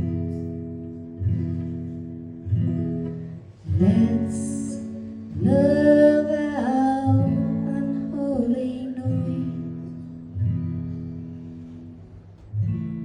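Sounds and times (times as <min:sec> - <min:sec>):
acoustic guitar strums: 0:00.0 - 0:13.0.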